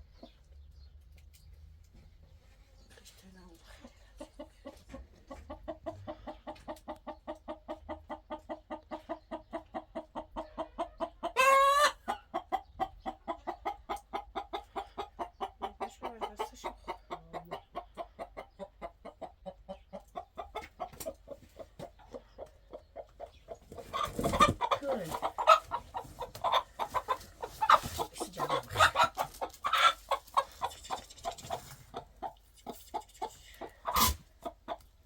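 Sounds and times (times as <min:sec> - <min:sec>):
chickens clucking: 0:00.0 - 0:35.0
chicken squawk: 0:10.4 - 0:12.3, 0:23.8 - 0:31.8, 0:33.6 - 0:34.8.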